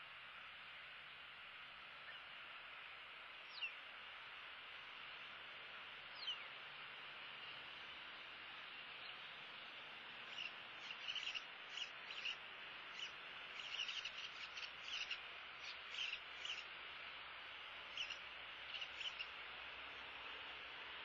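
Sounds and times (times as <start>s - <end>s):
steady hiss: 0.0s - 21.0s
high bird chirps: 10.3s - 16.6s, 17.9s - 19.3s.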